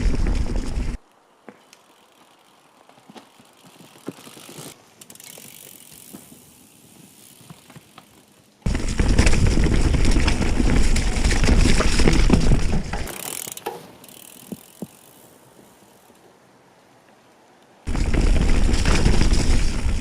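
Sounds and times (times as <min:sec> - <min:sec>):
bike tyres rumbling on rough trail: 0:00.0 - 0:16.5, 0:17.9 - 0:20.0
bike frame rattling: 0:01.6 - 0:16.1, 0:17.9 - 0:20.0
freewheel clicking: 0:03.4 - 0:15.2.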